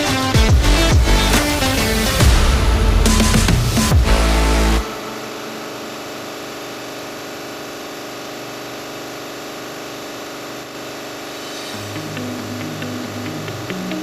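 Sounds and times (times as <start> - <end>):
electronic music: 0.0 - 8.6, 10.4 - 14.0
refrigeration compressor humming: 0.0 - 14.0.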